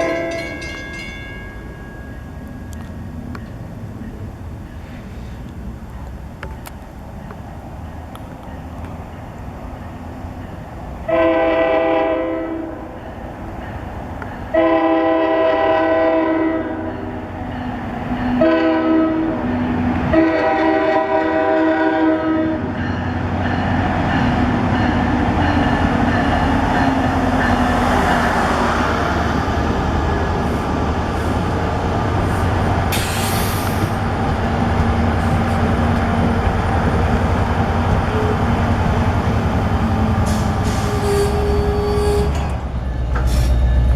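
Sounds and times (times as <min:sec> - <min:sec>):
train rumbling on rails: 0:00.0 - 0:43.9
locomotive air horn blasts: 0:11.1 - 0:12.8, 0:14.5 - 0:17.0, 0:18.4 - 0:22.7, 0:40.2 - 0:42.4.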